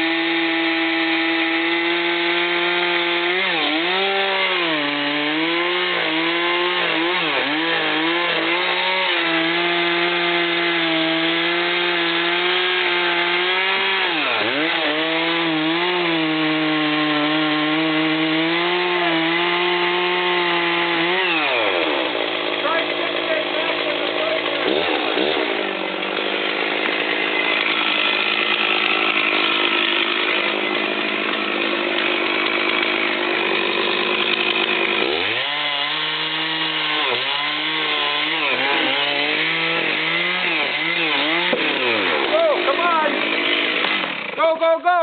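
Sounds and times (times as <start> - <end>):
chainsaw cutting tree trunk: 0.0 - 45.0.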